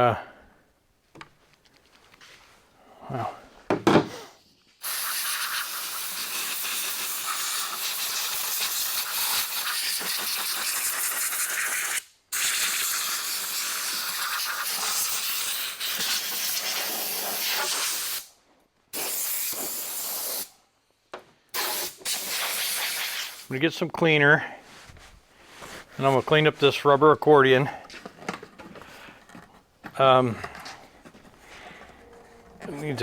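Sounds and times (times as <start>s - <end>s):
air hose blow gun hissing: 4.2s - 20.6s, 21.5s - 23.5s.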